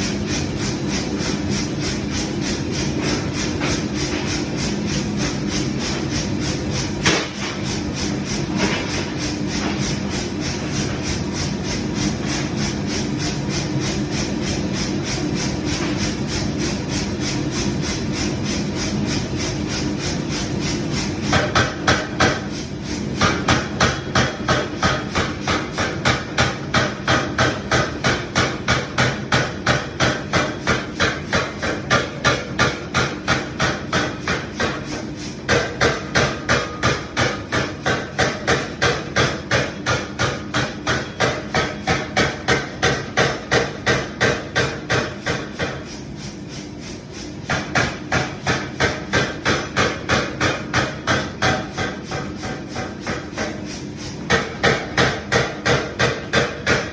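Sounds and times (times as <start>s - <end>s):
steady machine hum: 0.0s - 56.9s.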